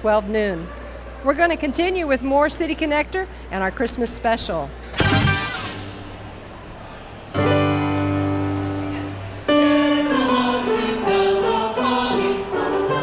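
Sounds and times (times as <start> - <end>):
choir singing: 9.4 - 13.0.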